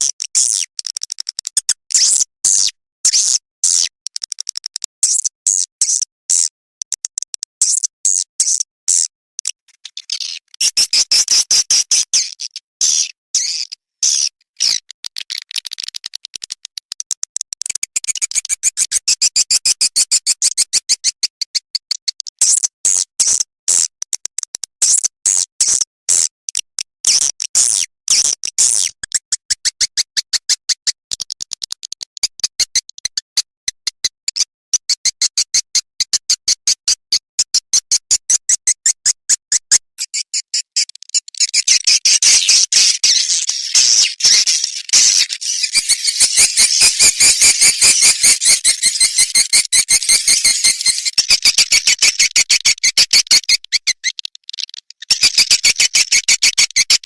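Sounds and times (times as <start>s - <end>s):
swiftlet clicking twitters: 0.0s - 2.2s, 3.1s - 8.6s, 13.4s - 22.6s, 39.6s - 57.0s.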